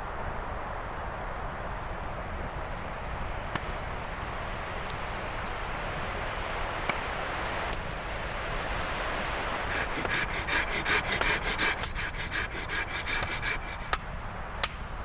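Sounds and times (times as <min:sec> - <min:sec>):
hand saw cutting wood: 0:09.5 - 0:14.1.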